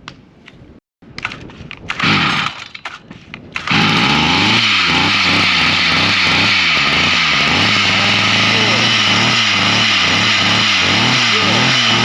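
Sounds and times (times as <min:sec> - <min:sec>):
two-stroke engine running rough: 0:02.0 - 0:02.6, 0:03.6 - 0:12.0.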